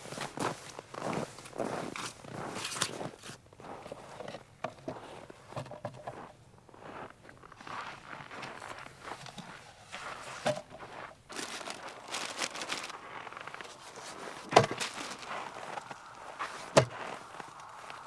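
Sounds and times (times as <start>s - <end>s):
gear rustling and crackling: 8.4s - 18.0s.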